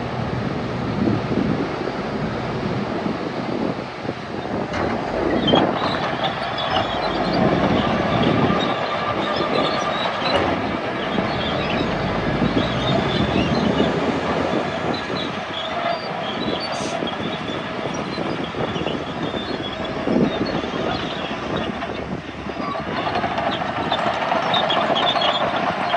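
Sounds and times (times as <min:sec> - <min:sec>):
diesel engine under load: 0:00.0 - 0:25.9
steel tracks clanking and squeaking: 0:04.3 - 0:25.9.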